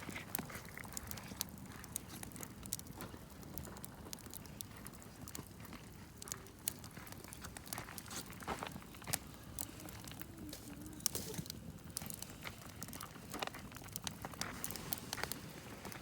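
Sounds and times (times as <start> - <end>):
campfire crackling and popping: 0.0 - 16.0
low rumble of burning: 0.0 - 16.0.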